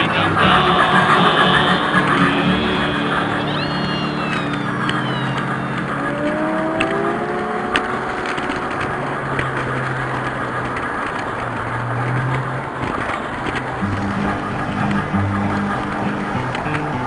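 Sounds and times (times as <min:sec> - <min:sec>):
rising tones: 0:00.0 - 0:10.0
low motor hum: 0:00.0 - 0:12.8, 0:13.6 - 0:17.0
model train rattling on track: 0:00.0 - 0:17.0.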